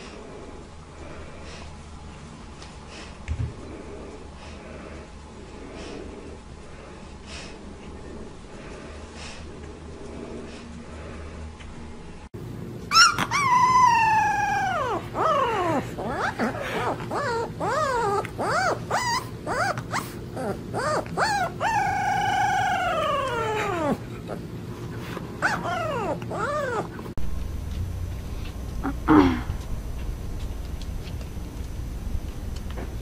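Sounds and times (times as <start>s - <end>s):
puppy yipping whines: 12.9s - 24.0s, 25.4s - 27.0s
puppy howling: 12.9s - 24.4s, 25.4s - 27.2s.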